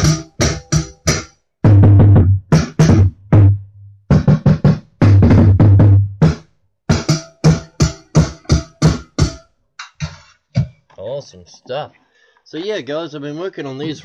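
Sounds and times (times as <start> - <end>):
deep bass drum thuds: 0.0 - 9.4
drum kit through speakers: 0.0 - 10.9.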